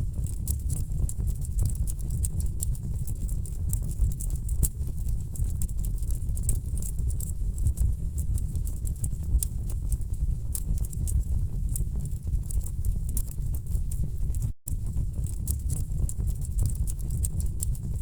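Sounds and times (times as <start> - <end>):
wood fire crackling: 15.1 - 17.8.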